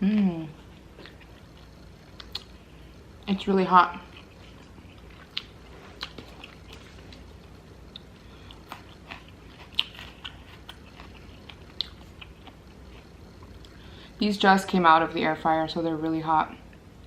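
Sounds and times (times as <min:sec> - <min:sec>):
chewing and biting: 0:01.0 - 0:02.6, 0:04.1 - 0:13.8.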